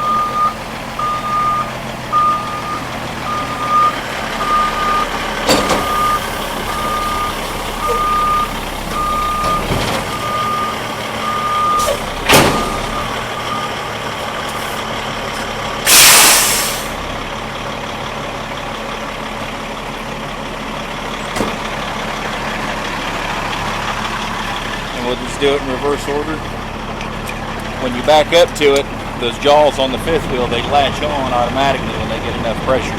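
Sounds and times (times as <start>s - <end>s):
backup alarm beeping: 0.0s - 14.1s
truck engine running: 0.0s - 32.9s
loud clunk: 5.4s - 6.2s, 11.8s - 13.0s, 21.3s - 21.6s
air brakes hissing: 11.7s - 12.9s, 15.8s - 17.0s.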